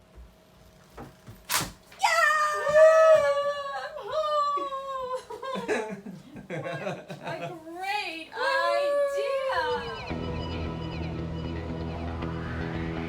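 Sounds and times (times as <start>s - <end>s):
high-pitched voice wailing: 8.4s - 10.1s.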